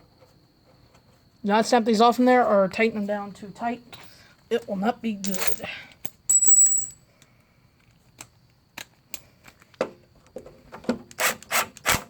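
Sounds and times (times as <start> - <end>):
tools clicking on metal: 5.3 - 7.0.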